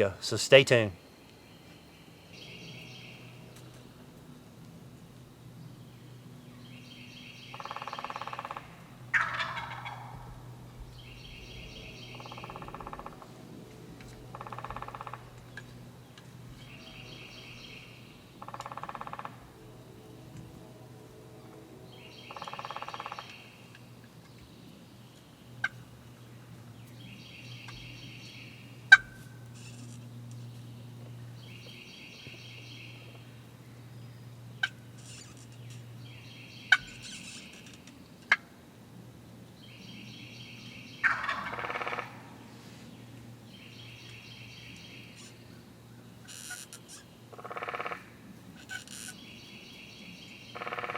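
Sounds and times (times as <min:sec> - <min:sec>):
turkey gobbling: 0:07.6 - 0:10.2, 0:41.0 - 0:42.2, 0:47.4 - 0:48.0, 0:50.6 - 0:50.9.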